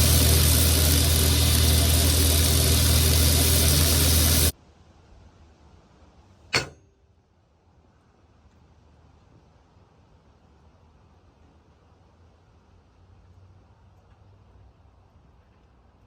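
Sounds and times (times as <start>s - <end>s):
machine motor hum and hiss: 0.0s - 4.5s
sharp click: 6.5s - 7.0s.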